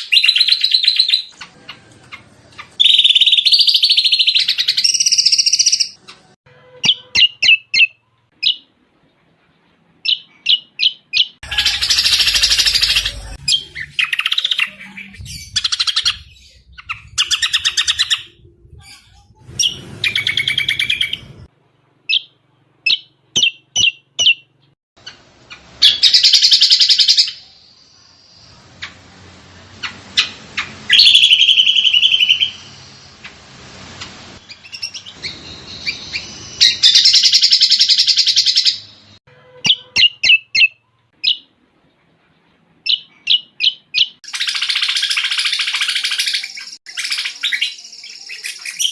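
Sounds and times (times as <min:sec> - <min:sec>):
bird singing chirps and trills: 0:34.4 - 0:38.9, 0:42.9 - 0:48.9.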